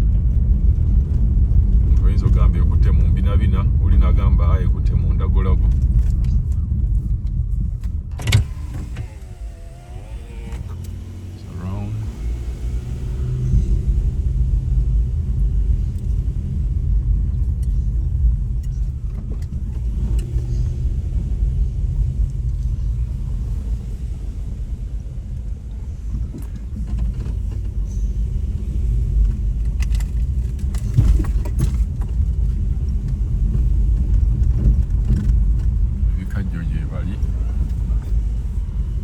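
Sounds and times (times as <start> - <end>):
vehicle engine and tyres rumbling: 0.0 - 39.0.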